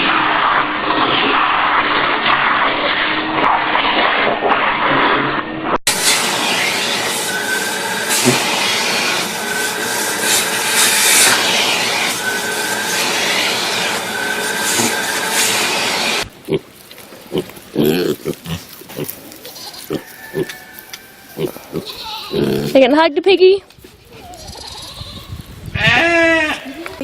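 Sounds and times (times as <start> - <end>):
harsh continuous noise: 5.9 - 16.3
pig grunting: 15.9 - 20.6, 21.4 - 22.8.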